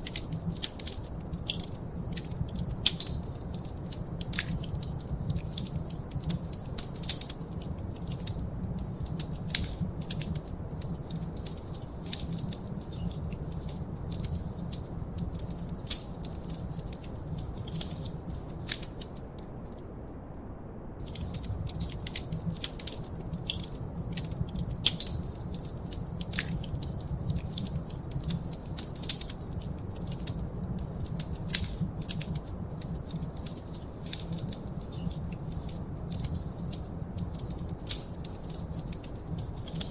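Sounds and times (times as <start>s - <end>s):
fire crackling and popping: 0.0s - 20.3s, 21.0s - 39.9s
low rumble of flames: 0.0s - 39.9s.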